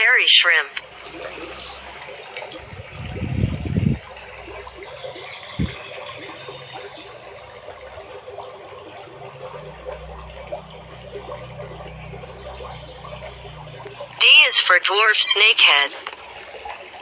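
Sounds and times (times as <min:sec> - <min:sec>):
water trickling: 0:00.0 - 0:17.0
low hum: 0:00.8 - 0:14.3.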